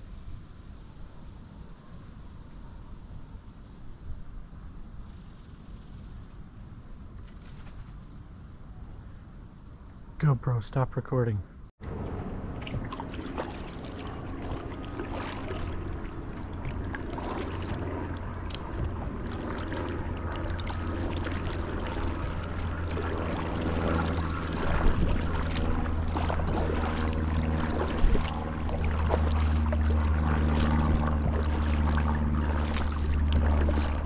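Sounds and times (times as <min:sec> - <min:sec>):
steady low rumble: 0:11.0 - 0:34.0
paddle strokes in water: 0:11.8 - 0:34.0
water splashing against hull: 0:11.8 - 0:34.0
sharp splash or knock: 0:12.6 - 0:16.1, 0:23.8 - 0:34.0.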